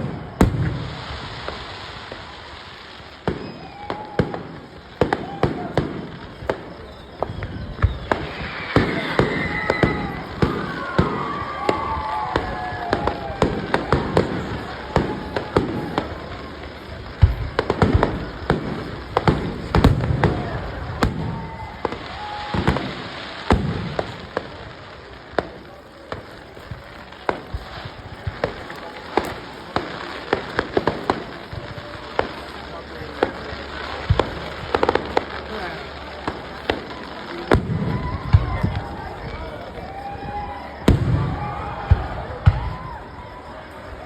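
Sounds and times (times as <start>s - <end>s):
fireworks bangs and crackles: 0.0s - 44.0s
high gliding whistle tones: 3.2s - 23.1s.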